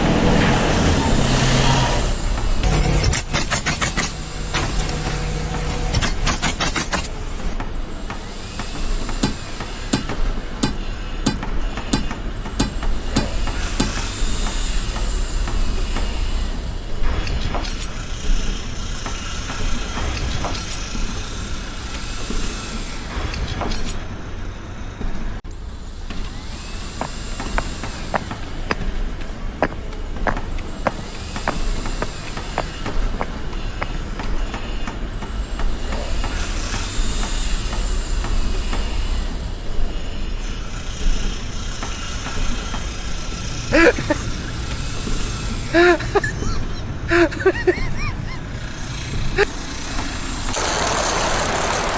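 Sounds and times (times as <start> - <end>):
heavy machinery rumbling: 0.0 - 15.2, 50.5 - 51.9
high air hiss: 50.6 - 51.9.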